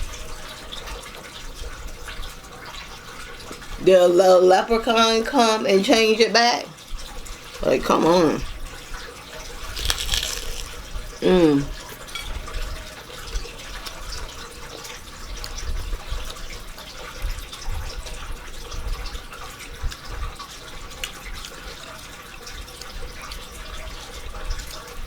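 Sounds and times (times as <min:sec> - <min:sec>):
wet chewing with clicks and smacks: 0:09.5 - 0:12.1, 0:13.3 - 0:17.4, 0:19.6 - 0:25.0.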